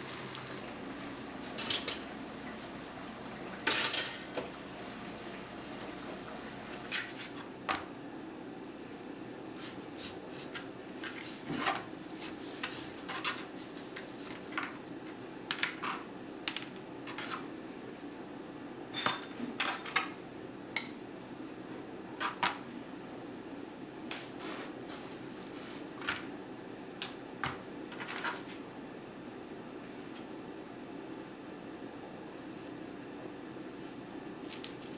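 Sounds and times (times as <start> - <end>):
utensils and dishes tapping: 1.5 - 2.6.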